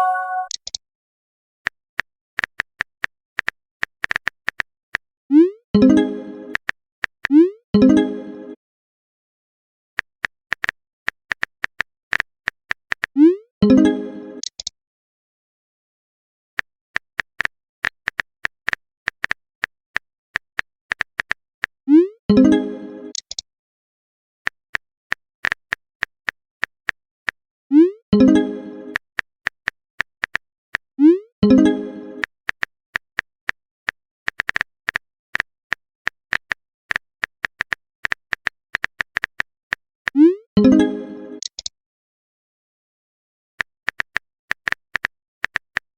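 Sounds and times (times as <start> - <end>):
message notification chirp: 0.0 - 0.6
phone keyboard typing clicks: 14.4 - 14.7, 23.1 - 23.4, 33.5 - 39.5, 41.4 - 41.7, 43.6 - 45.9
phone keyboard tapping clicks: 41.4 - 41.7.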